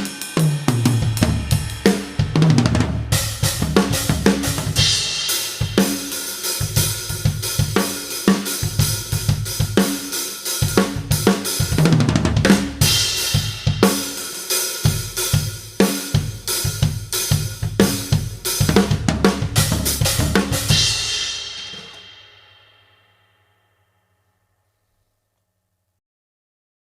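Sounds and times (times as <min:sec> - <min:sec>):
drum kit groove: 0:00.0 - 0:22.5
cymbal crash ringing: 0:20.5 - 0:24.2.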